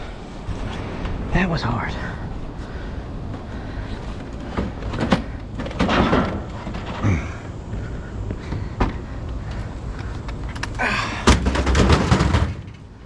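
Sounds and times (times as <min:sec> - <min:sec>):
steady low rumble: 0:00.0 - 0:13.0
person clambering in metal dumpster: 0:04.2 - 0:07.6, 0:10.3 - 0:13.0.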